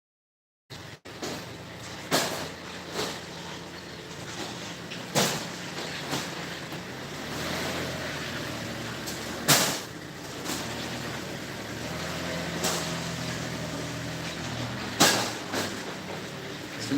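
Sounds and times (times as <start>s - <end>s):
bottle crates knocking and clattering: 1.1s - 7.0s, 9.0s - 11.4s, 12.5s - 16.9s
low engine hum: 1.1s - 16.9s.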